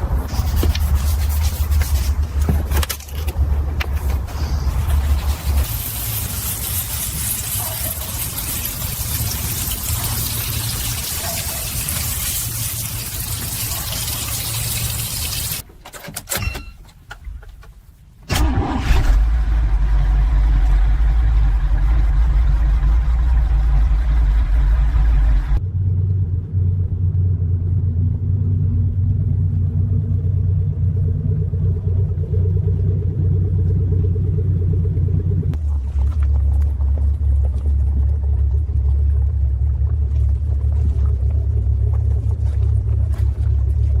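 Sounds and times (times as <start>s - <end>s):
low engine hum: 0.0s - 15.6s, 19.0s - 44.0s
car engine starting: 18.3s - 44.0s.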